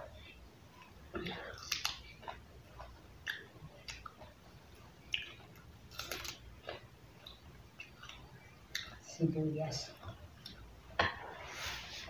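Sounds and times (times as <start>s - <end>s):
person crunching lettuce: 5.9s - 6.8s.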